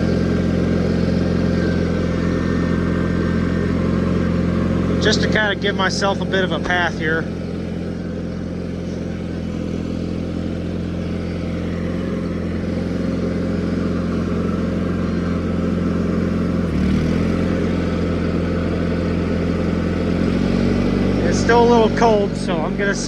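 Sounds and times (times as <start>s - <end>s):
garden tractor engine running: 0.0s - 23.0s.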